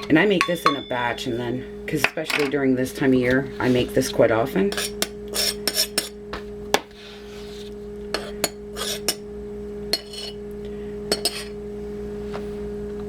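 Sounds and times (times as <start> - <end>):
utensils clinking against a bowl: 0.0 - 2.6, 4.6 - 6.2, 9.9 - 10.4, 11.1 - 11.6
steady low hum: 0.0 - 13.0.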